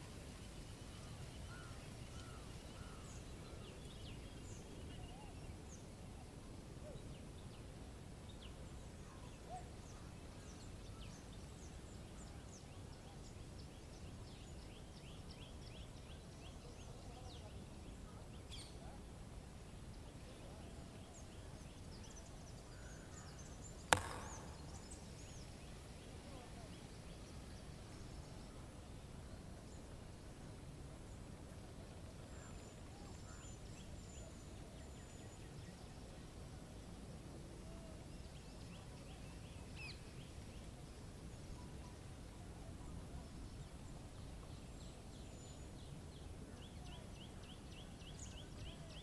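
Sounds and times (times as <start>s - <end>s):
sharp click: 23.9s - 24.9s.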